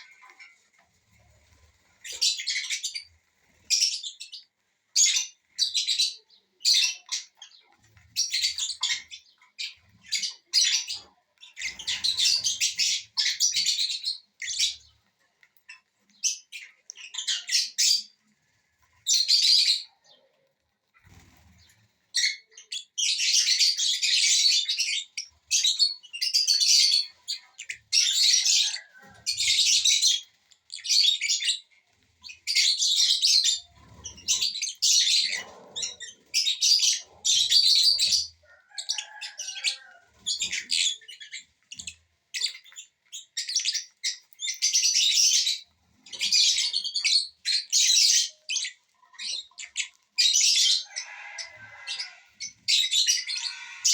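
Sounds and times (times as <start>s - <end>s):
parrots chattering shrilly: 43.4s - 53.9s.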